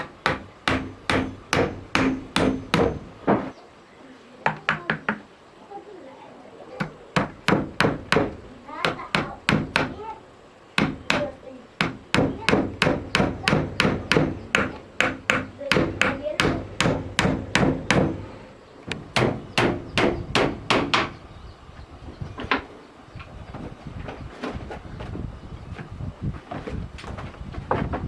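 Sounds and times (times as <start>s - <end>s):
hammer blows: 0.0s - 3.5s, 10.8s - 21.2s.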